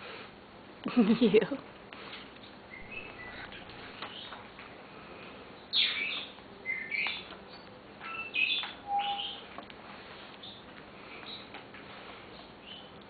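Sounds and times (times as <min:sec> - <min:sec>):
parrot whistling and chirping: 0:02.7 - 0:04.3, 0:05.7 - 0:09.5.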